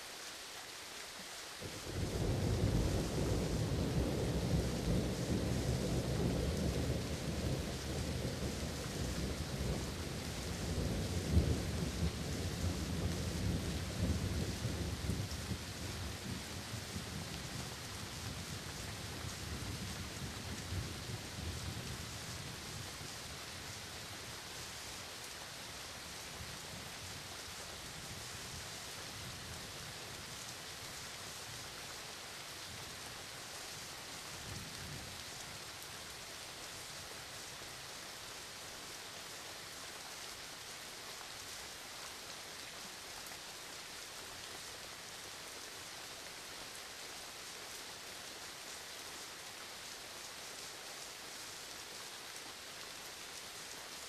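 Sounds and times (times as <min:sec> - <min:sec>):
rain hissing: 0:00.0 - 0:54.0
low rumble of thunder: 0:01.7 - 0:23.9.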